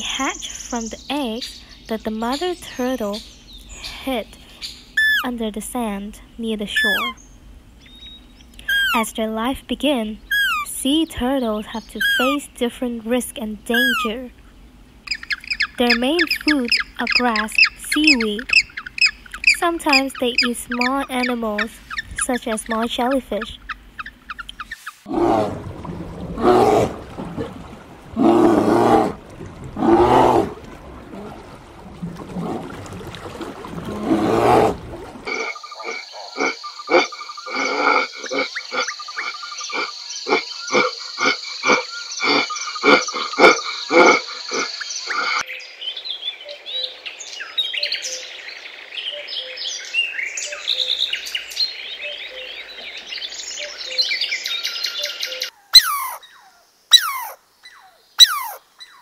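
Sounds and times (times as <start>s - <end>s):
harsh animal calls: 23.4s - 31.4s, 33.8s - 45.4s, 55.8s - 57.4s, 58.2s - 59.0s
croak-like pulsing: 25.1s - 45.4s.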